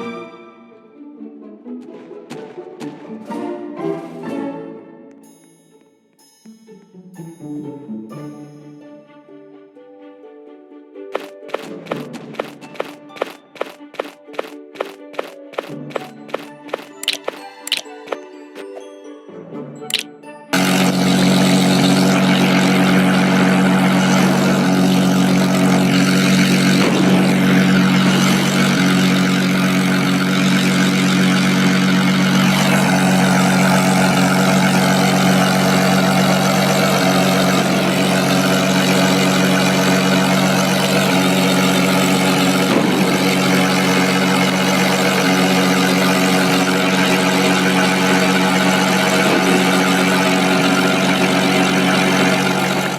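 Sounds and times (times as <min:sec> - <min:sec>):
aircraft engines humming: 0:11.2 - 0:18.3, 0:19.8 - 0:52.9.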